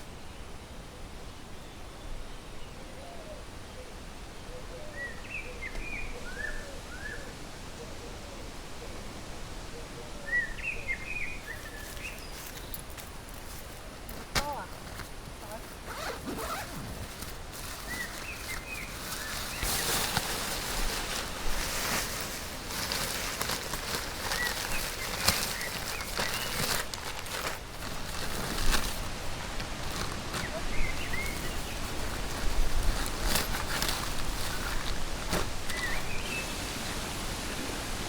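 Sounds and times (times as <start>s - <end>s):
rustles: 11.1s - 38.0s
steady hiss: 11.4s - 38.0s.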